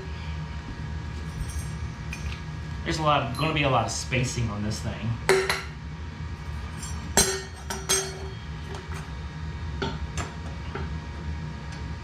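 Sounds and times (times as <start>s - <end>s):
steady low hum: 0.0s - 12.0s
metal parts clinking: 1.2s - 2.4s.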